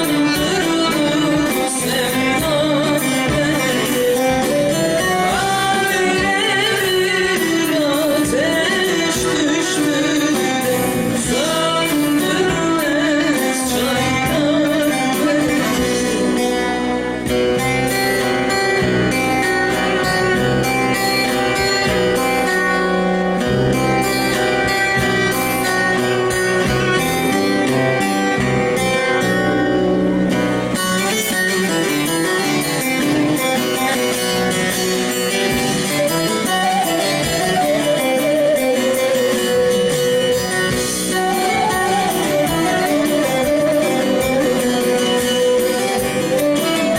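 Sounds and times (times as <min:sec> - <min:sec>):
person singing: 0:00.0 - 0:17.1
plucked string folk music: 0:00.0 - 0:46.9.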